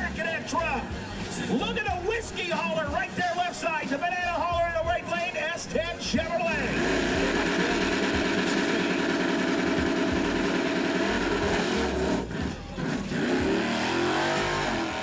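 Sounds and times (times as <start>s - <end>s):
truck engines revving loudly: 0.0s - 2.5s, 5.7s - 15.0s.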